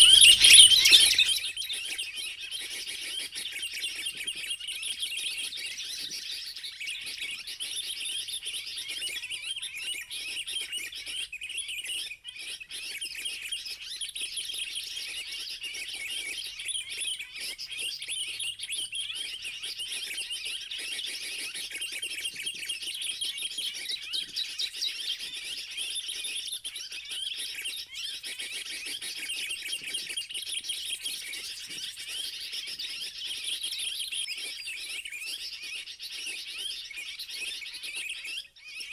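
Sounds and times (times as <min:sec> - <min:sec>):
bird chirping high-pitched: 0:00.0 - 0:01.6.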